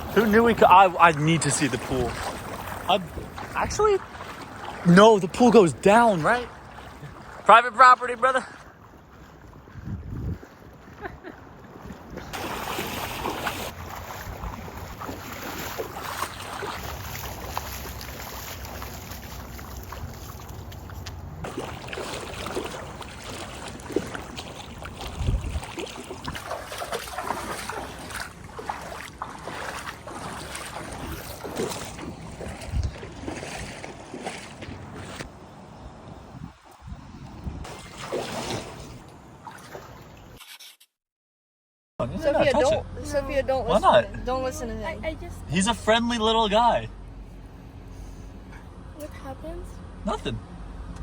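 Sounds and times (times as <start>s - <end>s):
wind buffeting microphone: 0.0s - 4.9s, 8.8s - 12.6s, 13.2s - 37.8s.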